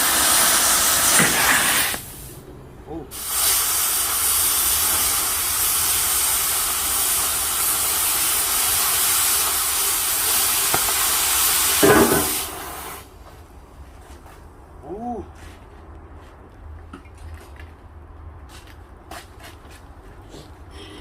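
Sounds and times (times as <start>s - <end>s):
rushing gas hiss: 0.0s - 13.2s.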